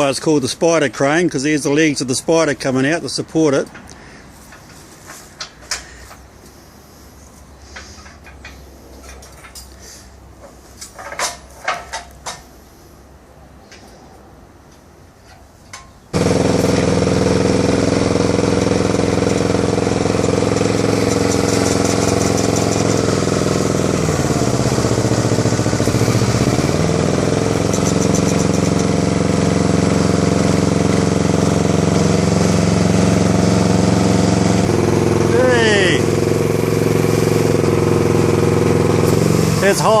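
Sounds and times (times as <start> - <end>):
crane engine running: 16.1 - 40.0.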